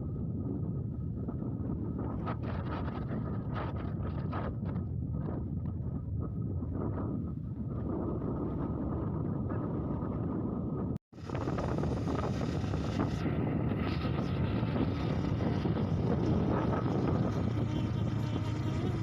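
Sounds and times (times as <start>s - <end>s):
wind on microphone: 0.0s - 19.0s
motorcycle engine running: 14.0s - 19.0s.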